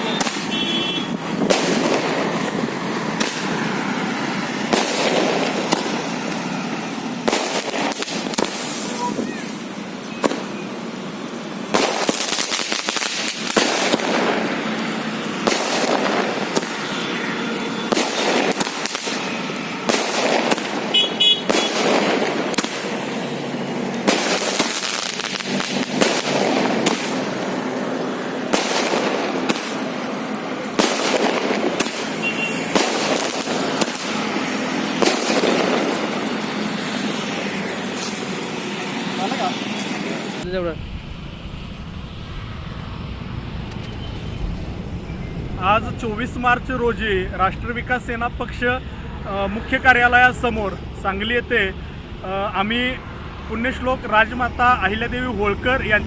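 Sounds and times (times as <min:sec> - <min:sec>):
firecrackers popping and cracking: 0:00.0 - 0:14.8, 0:15.4 - 0:40.4.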